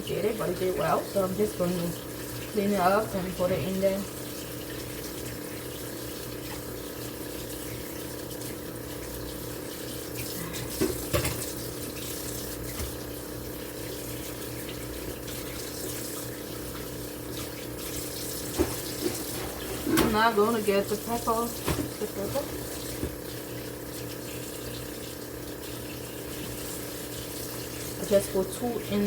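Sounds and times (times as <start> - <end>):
tap running into sink: 10.2 - 11.6, 12.6 - 13.1, 16.7 - 20.5, 21.3 - 23.4
knocks in sink: 18.5 - 20.2, 21.6 - 23.2.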